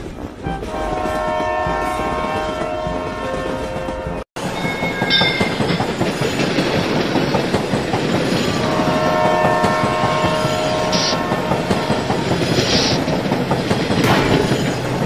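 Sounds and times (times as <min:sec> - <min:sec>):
train wheels rumbling and clattering: 0:00.0 - 0:15.0
train horn chord: 0:00.4 - 0:04.2, 0:08.5 - 0:12.3.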